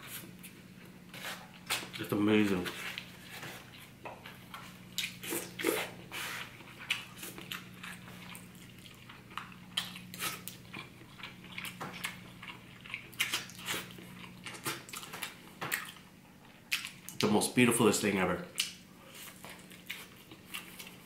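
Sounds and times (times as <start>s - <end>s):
man chewing meat: 0.0s - 17.3s, 18.5s - 21.0s
faint steady hum: 0.0s - 21.0s
lip smacks and clicks: 18.6s - 18.8s.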